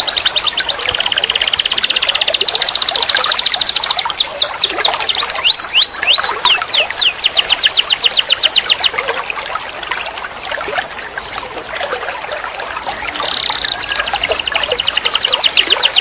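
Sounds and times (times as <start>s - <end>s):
canary singing trills and whistles: 0.0s - 9.0s, 12.9s - 16.0s.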